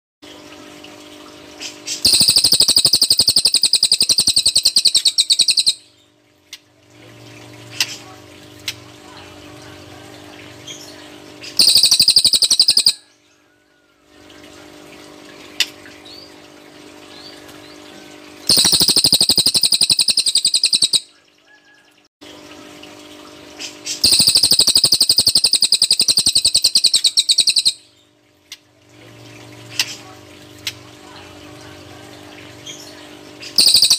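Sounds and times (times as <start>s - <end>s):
bird singing rapid high trills: 2.0s - 6.1s, 10.6s - 13.3s, 18.5s - 21.2s, 24.0s - 28.1s, 32.6s - 33.9s.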